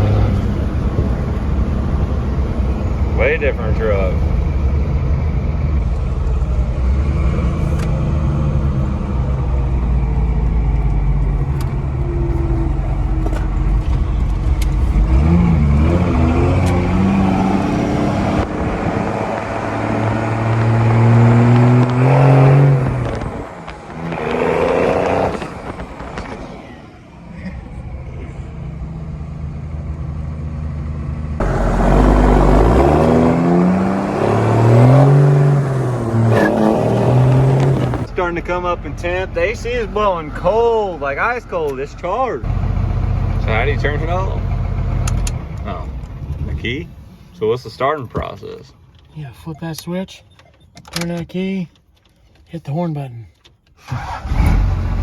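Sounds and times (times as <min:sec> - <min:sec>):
diesel truck engine accelerating: 0:00.0 - 0:52.0, 0:53.7 - 0:55.0.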